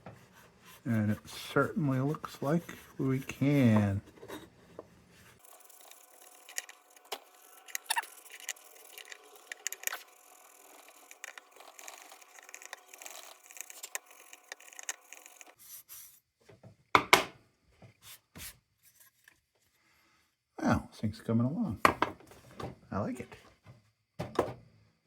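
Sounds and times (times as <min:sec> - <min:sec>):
steel wool scraping metal: 0:00.7 - 0:04.0, 0:05.3 - 0:15.6.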